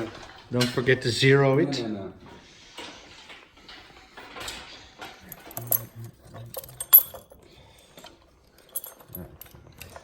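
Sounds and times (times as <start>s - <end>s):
metal equipment clicking and rattling: 3.3s - 10.0s.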